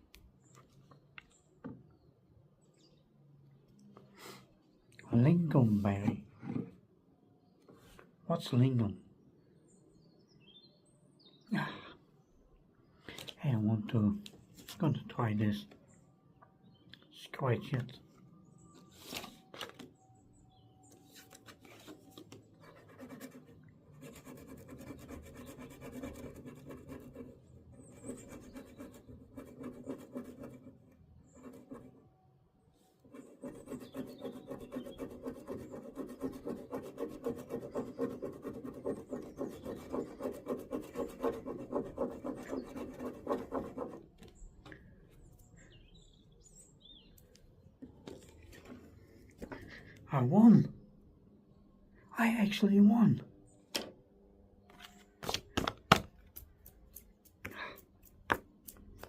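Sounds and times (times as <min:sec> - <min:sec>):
lottery card being scratched: 0:33.2 - 0:44.0.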